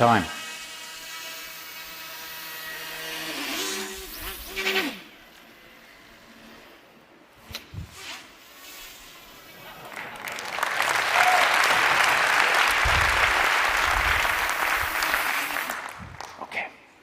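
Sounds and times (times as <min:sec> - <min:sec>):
audience applauding: 0:09.7 - 0:16.4.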